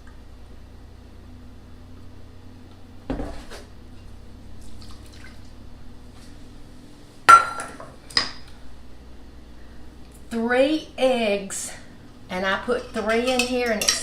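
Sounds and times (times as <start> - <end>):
dishes knocking and clinking: 7.3 - 8.4.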